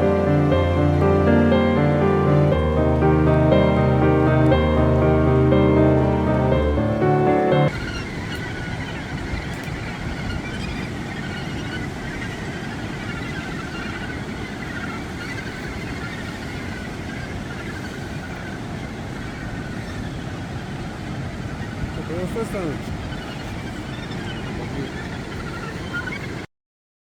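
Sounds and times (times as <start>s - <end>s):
gannet colony calling: 22.1s - 26.4s.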